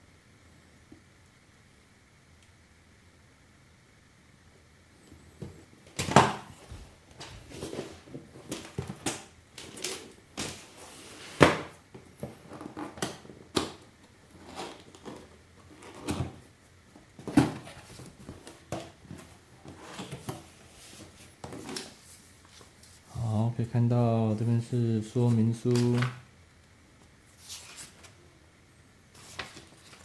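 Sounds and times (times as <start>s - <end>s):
packaging rustling and scraping: 6.4s - 13.6s, 14.2s - 23.1s, 27.3s - 28.2s, 29.1s - 30.0s.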